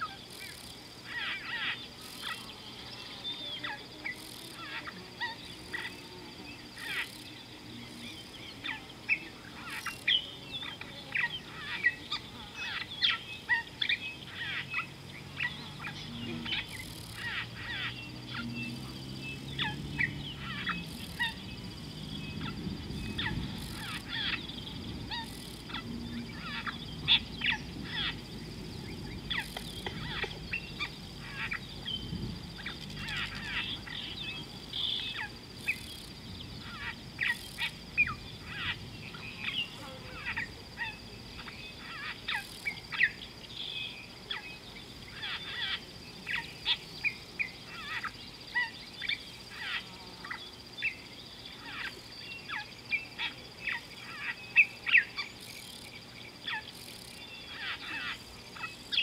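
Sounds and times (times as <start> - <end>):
wild birds chirping: 0.0 - 59.0.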